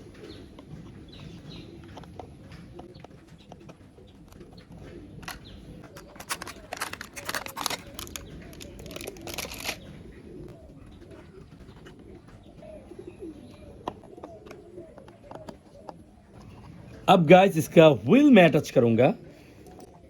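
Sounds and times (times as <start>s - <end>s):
plastic toy parts clicking: 5.2s - 9.8s.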